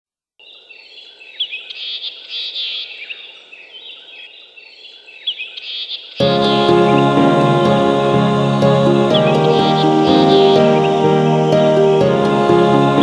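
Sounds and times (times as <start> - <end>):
birds chirping and calling: 0.5 - 6.2.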